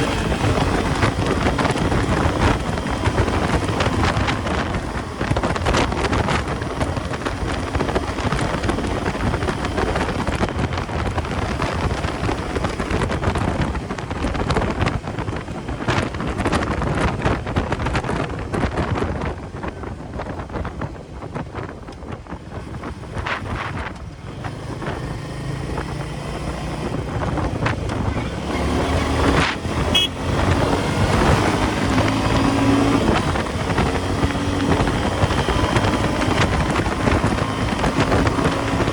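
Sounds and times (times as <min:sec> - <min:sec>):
motorcycle engine running: 0:00.0 - 0:38.9
wind buffeting on microphone: 0:00.0 - 0:38.9
brief high beep: 0:29.9 - 0:30.2.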